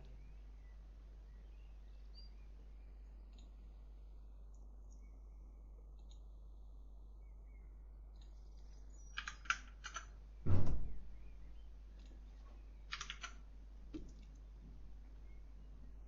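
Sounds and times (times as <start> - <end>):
keyboard and mouse clicking: 9.1 - 10.1, 12.9 - 14.5.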